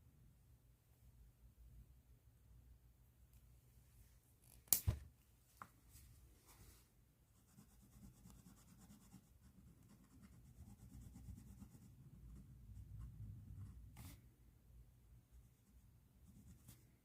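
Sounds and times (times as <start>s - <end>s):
pen scratching on paper: 7.4s - 14.2s.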